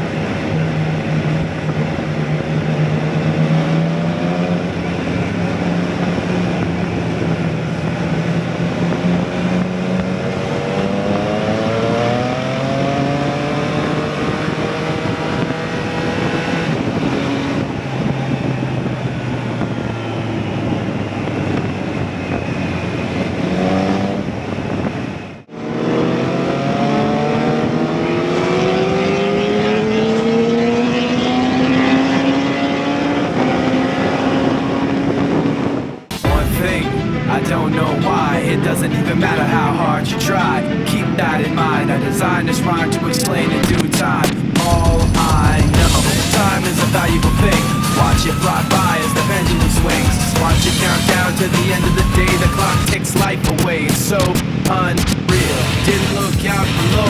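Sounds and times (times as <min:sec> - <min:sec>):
motorcycle engine revving: 0:00.0 - 0:24.9, 0:25.5 - 0:37.3, 0:43.8 - 0:53.0.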